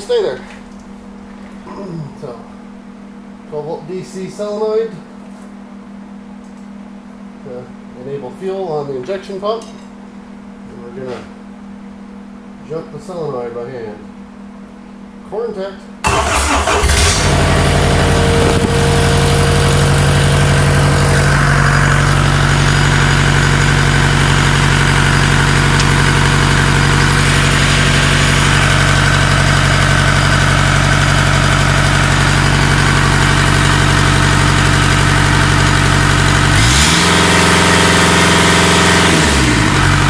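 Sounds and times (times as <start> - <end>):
diesel engine running: 16.0 - 40.0.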